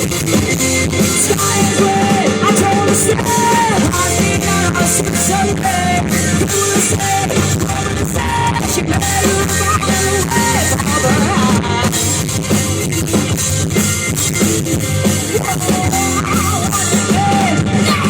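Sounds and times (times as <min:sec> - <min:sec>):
bass guitar: 0:00.0 - 0:18.0
drum kit: 0:00.0 - 0:18.0
electric guitar: 0:00.0 - 0:18.0
person singing: 0:00.8 - 0:12.4, 0:15.2 - 0:18.0.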